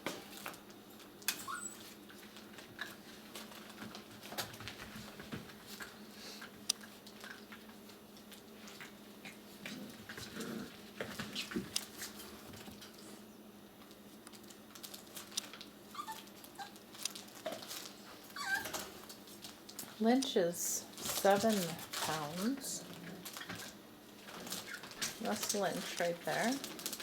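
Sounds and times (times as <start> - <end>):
puppies whimpering: 1.3 - 2.0, 16.0 - 16.8, 18.3 - 18.9.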